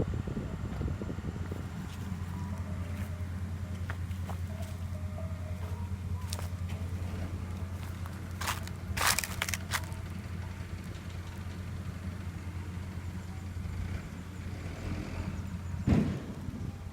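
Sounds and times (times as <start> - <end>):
diesel engine running: 0.0 - 16.9
short crunching noises: 5.6 - 10.0.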